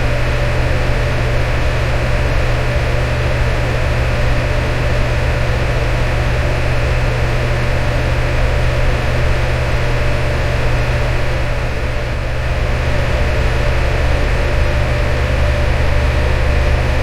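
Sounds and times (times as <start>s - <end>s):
fan low hum: 0.0s - 17.0s.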